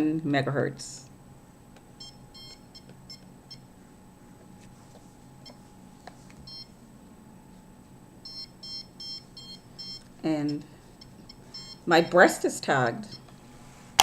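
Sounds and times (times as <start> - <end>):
detector beeping in high chirps: 2.0 - 3.6, 8.2 - 12.2.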